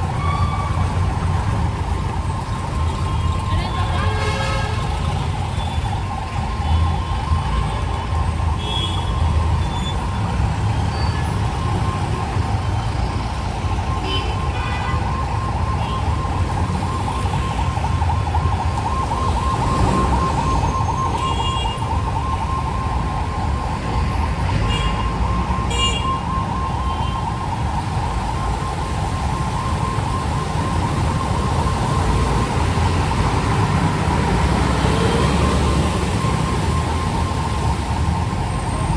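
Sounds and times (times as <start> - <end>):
street traffic rumble: 0.0 - 38.9
warbling siren tone: 14.7 - 38.9.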